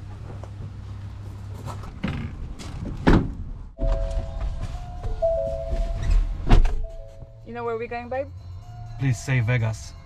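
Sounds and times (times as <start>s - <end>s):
low steady hum: 3.8s - 8.5s
door thunk: 5.7s - 6.9s.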